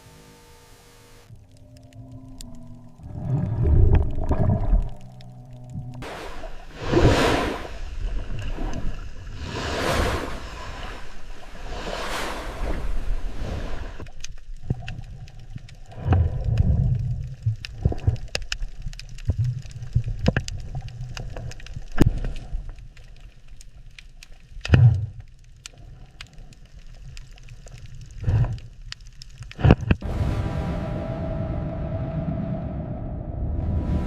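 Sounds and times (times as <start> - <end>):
bubbling surges: 1.3 - 14.0
low underwater rumble: 1.3 - 22.7, 29.6 - 34.0.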